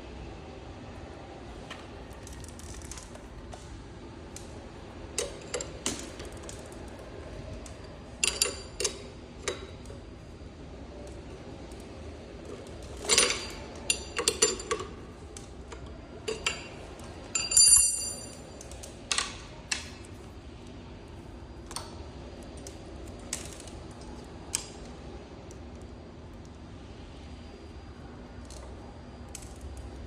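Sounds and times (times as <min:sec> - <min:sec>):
metal tools clinking: 0:08.2 - 0:09.6, 0:12.9 - 0:14.9, 0:16.3 - 0:16.8, 0:17.4 - 0:18.7.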